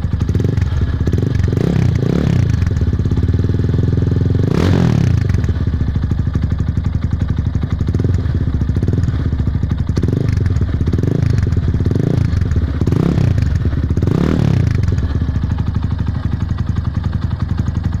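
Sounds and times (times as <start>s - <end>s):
engine exhaust idling and revving: 0.0s - 18.0s.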